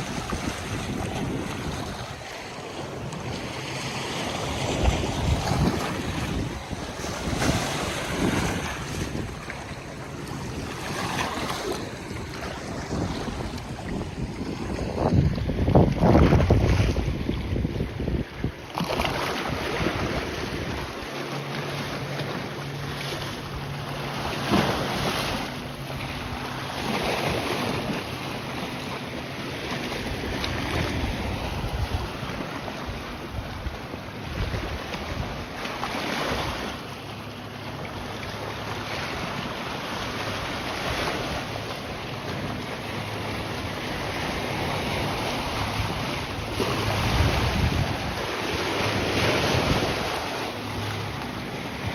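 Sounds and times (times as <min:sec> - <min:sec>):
wind buffeting microphone: 0:00.0 - 0:21.2, 0:29.6 - 0:35.6, 0:40.2 - 0:51.9
waves washing against shore: 0:00.0 - 0:51.9.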